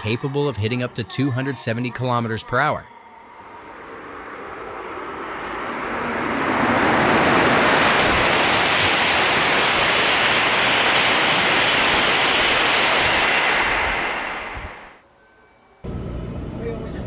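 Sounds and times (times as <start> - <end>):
high-speed train rushing past: 0.0 - 15.0.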